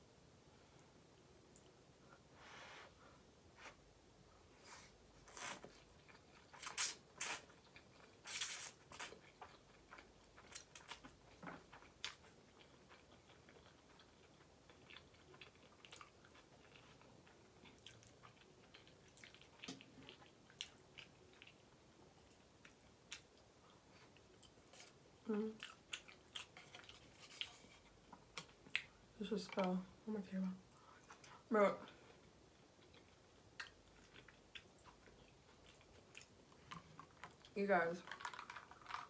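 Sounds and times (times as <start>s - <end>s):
person chewing noodles: 5.3s - 29.0s, 32.2s - 39.0s.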